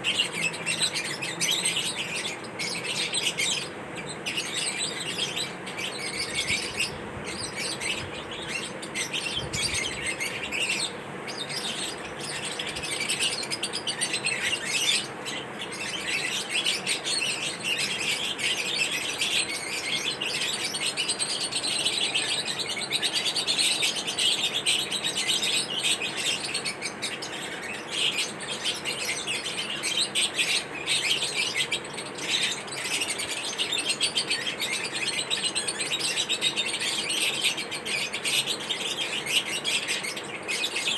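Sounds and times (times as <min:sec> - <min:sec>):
birds chirping rapidly: 0:00.0 - 0:40.9.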